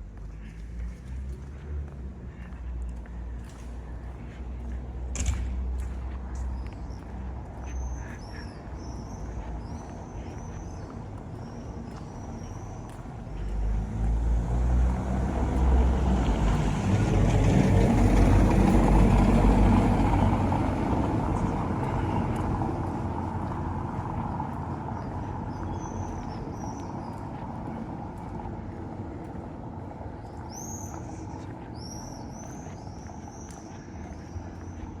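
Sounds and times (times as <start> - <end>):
birds chirping: 2.2 - 16.6, 18.0 - 35.0
heavy vehicle passing: 12.7 - 35.0.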